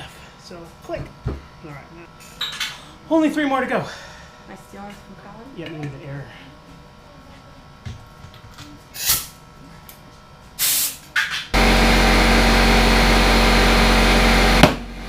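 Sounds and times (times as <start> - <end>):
compressor hum: 0.0 - 15.0
compressed air hissing: 8.9 - 9.4, 10.6 - 11.0.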